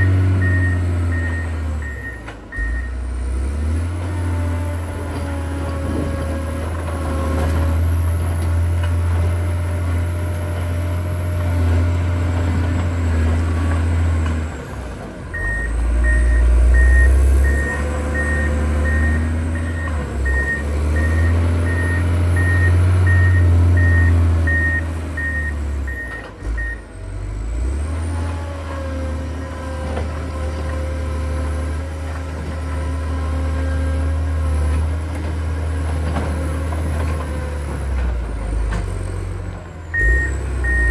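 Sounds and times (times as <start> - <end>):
reversing alarm beeping: 0.0 - 3.0, 15.3 - 26.8, 39.9 - 40.9
diesel engine under load: 0.0 - 40.9.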